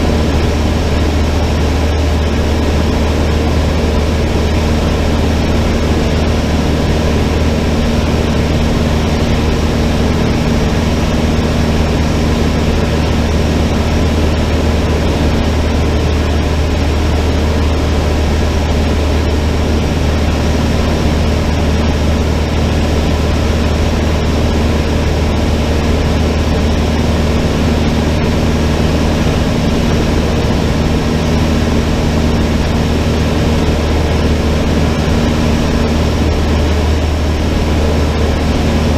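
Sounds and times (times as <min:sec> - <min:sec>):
airplane engine drone: 0:00.0 - 0:38.9.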